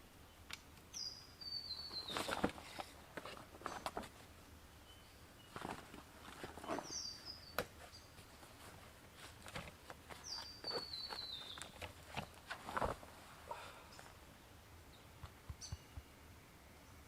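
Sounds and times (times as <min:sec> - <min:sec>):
bird calling: 0:00.9 - 0:03.0, 0:04.8 - 0:09.4, 0:10.1 - 0:14.2
camping gear rustling and knocking: 0:01.8 - 0:04.3, 0:05.4 - 0:14.2
quiet footsteps: 0:05.4 - 0:14.3.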